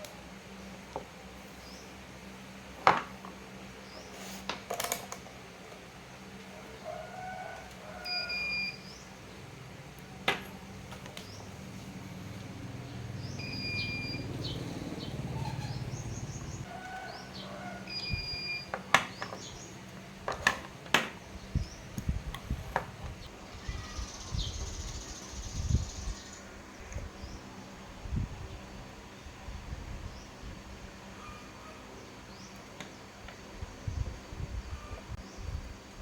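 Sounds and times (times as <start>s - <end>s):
small birds chirping: 10.6s - 20.1s, 21.2s - 27.6s.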